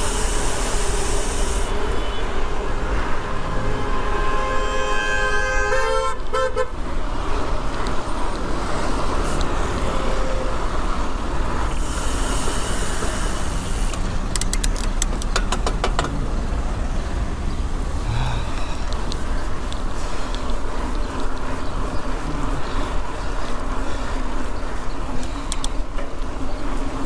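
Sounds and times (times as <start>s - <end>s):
vehicle horn honking: 0.0s - 2.6s, 3.6s - 6.7s, 9.8s - 11.2s
traffic noise: 0.0s - 27.0s
wind: 0.0s - 27.0s
sharp clicks: 11.7s - 16.1s, 25.5s - 25.8s.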